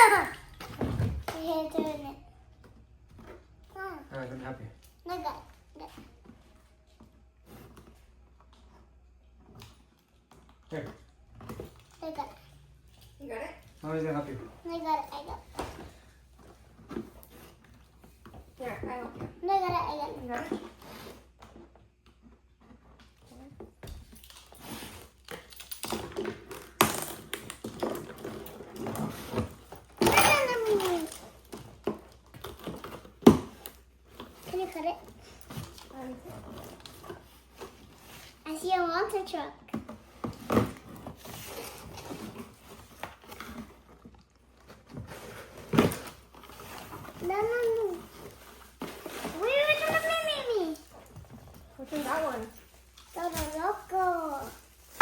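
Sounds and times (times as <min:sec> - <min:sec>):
rustling of toy package: 0:40.8 - 0:55.0.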